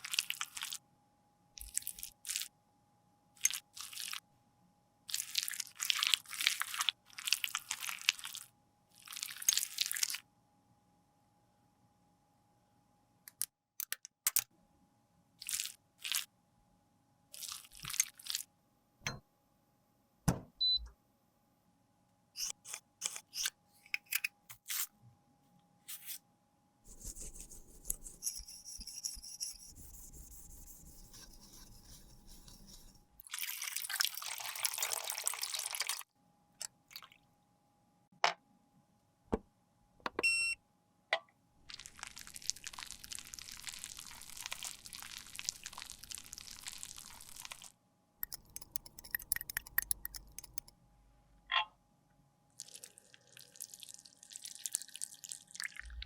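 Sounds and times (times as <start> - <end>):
tools tapping and scraping: 19.0 - 19.2, 22.4 - 24.6, 48.2 - 50.7.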